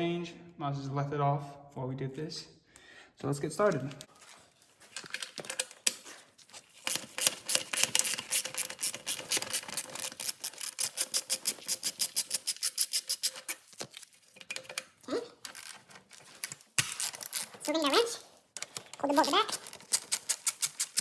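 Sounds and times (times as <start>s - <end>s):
ratchet wrench clicking: 7.2s - 13.5s.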